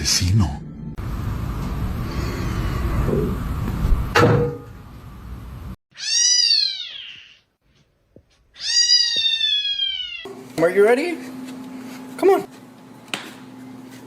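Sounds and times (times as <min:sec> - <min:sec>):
noisy rumble: 0:01.0 - 0:05.8
sharp knock: 0:04.1 - 0:04.7
cat meowing: 0:05.9 - 0:07.5, 0:08.6 - 0:10.3.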